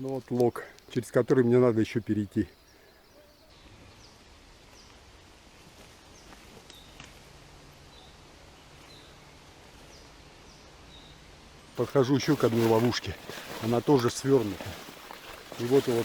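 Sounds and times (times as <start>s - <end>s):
forest ambience: 0.0s - 16.0s
bird chirping: 0.7s - 5.0s.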